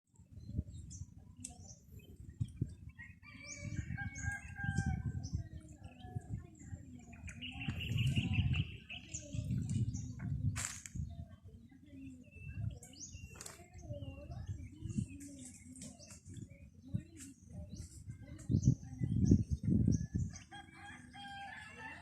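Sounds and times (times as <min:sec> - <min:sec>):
small birds chirping: 0:00.1 - 0:21.4
rooster crowing: 0:20.5 - 0:22.0.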